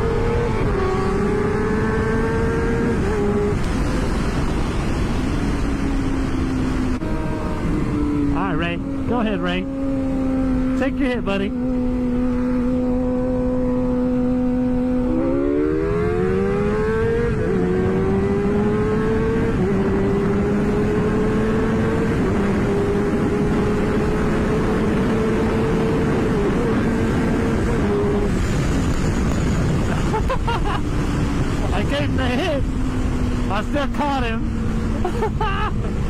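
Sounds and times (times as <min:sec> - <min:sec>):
motorcycle engine accelerating: 0:00.0 - 0:36.0
wind rush on microphone: 0:00.0 - 0:36.0.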